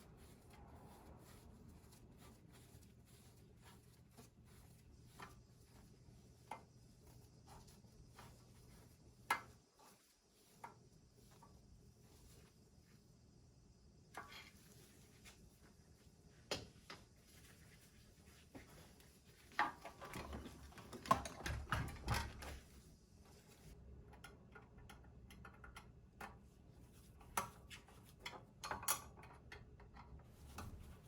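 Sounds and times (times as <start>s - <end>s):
knocking and rattling: 19.6s - 22.6s.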